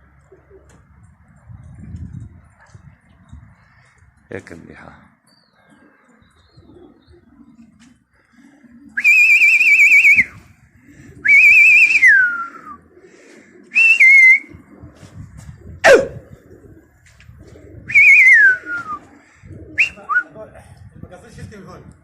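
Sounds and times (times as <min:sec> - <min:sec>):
warbling whistle blasts: 0:09.0 - 0:10.3, 0:11.3 - 0:12.6, 0:13.8 - 0:14.5, 0:17.9 - 0:19.0.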